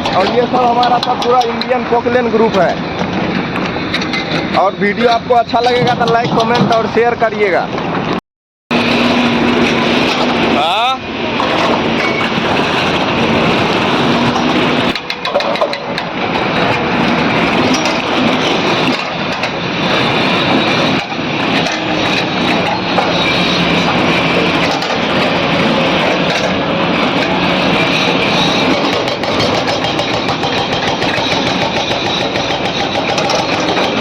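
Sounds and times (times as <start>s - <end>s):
excavator diesel engines working: 0.0s - 8.1s, 8.7s - 34.0s.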